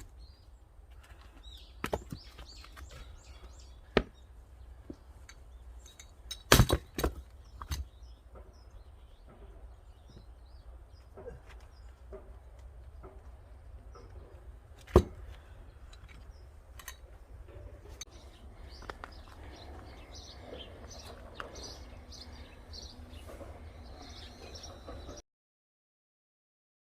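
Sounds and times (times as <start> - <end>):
small birds chirping: 0.0 - 25.2
axe striking log: 3.9 - 4.2, 6.4 - 7.8, 14.8 - 15.3.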